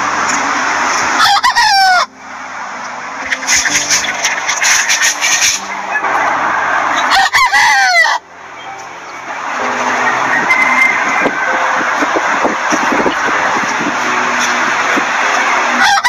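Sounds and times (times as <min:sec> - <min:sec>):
chickens clucking: 0:00.0 - 0:16.0
steady background noise: 0:00.0 - 0:16.0
rooster crowing: 0:01.2 - 0:02.2, 0:06.9 - 0:08.3, 0:09.6 - 0:11.8, 0:15.7 - 0:16.0.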